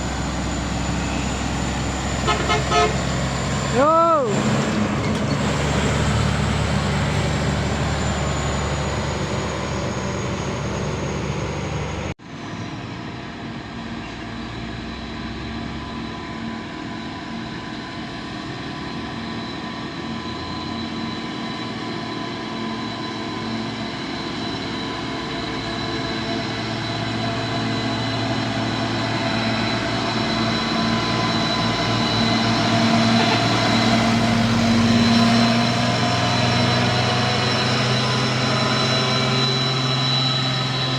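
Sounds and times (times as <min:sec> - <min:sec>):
truck engines running: 0:00.0 - 0:12.1, 0:23.5 - 0:40.9.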